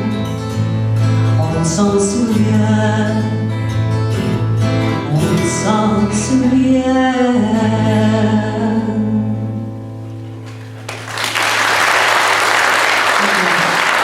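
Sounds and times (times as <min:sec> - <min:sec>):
audience applause: 0:10.4 - 0:14.0.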